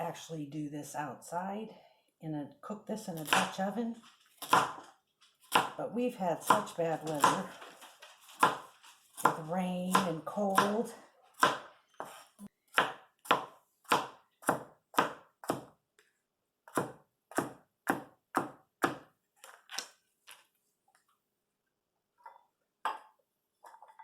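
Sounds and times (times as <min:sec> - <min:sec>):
knife chopping on a cutting board: 0:04.4 - 0:04.8, 0:05.5 - 0:05.8, 0:06.5 - 0:07.5, 0:08.4 - 0:10.8, 0:11.4 - 0:15.8, 0:16.7 - 0:19.1.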